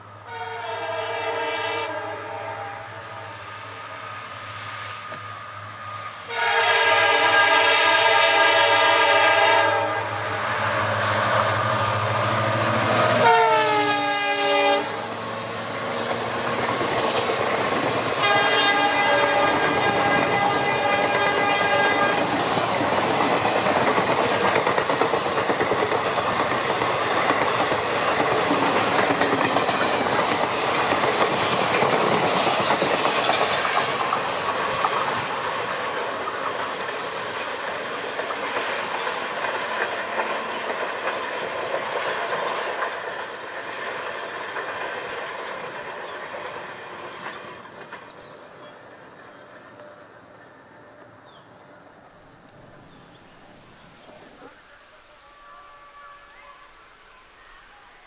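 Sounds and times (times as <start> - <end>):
locomotive horn blasts: 0.2 - 3.3, 6.2 - 10.2, 12.9 - 15.2, 18.2 - 22.4, 55.2 - 57.0.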